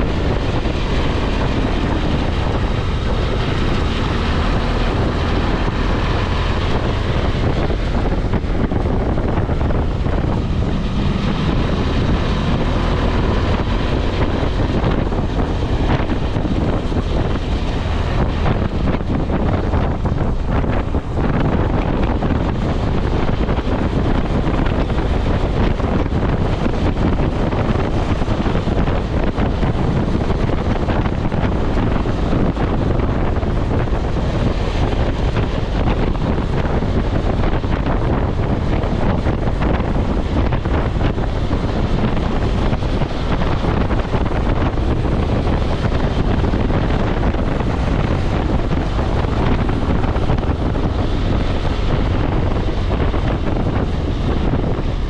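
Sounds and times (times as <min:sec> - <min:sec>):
motorcycle engine: 0:00.0 - 0:55.0
road noise: 0:00.0 - 0:55.0
wind buffeting microphone: 0:00.0 - 0:55.0.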